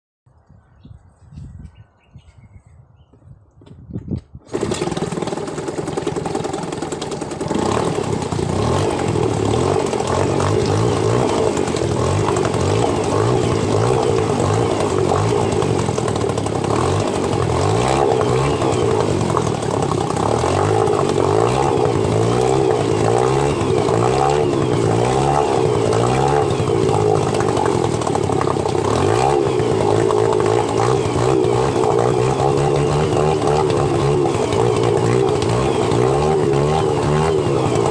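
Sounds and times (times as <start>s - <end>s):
outboard boat motor running: 4.5s - 37.9s.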